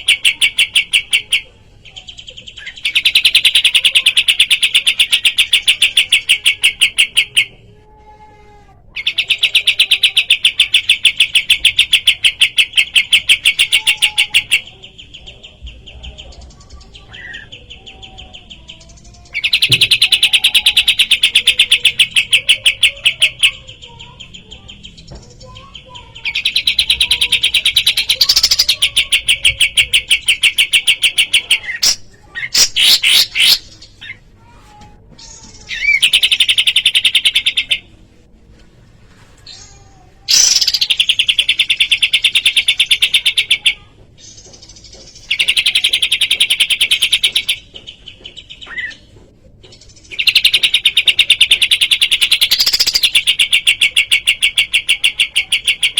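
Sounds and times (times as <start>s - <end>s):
songbird rattling trill: 19.1s - 33.8s, 40.3s - 49.0s, 49.8s - 55.9s.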